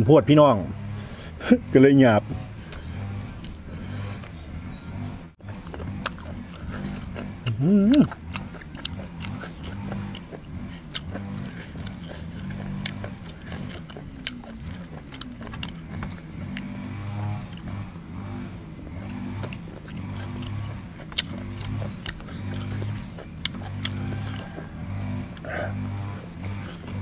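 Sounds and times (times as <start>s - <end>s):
pulsing low hum: 0.0s - 27.0s
man chewing and smacking lips: 2.4s - 27.0s
wet mouth clicks: 5.5s - 16.7s, 19.0s - 24.7s.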